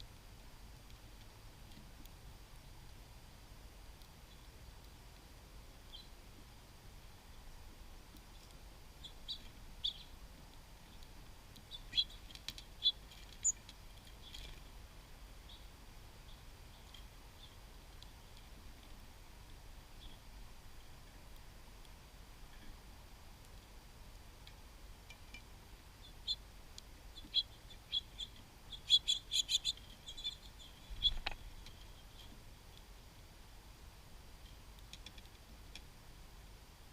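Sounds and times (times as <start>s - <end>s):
small songbirds chirping: 3.9s - 33.6s
faint clicks: 34.4s - 35.9s.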